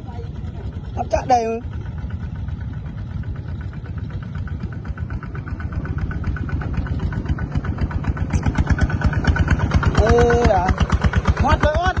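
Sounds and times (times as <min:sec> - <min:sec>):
small tractor engine running: 0:00.0 - 0:12.0.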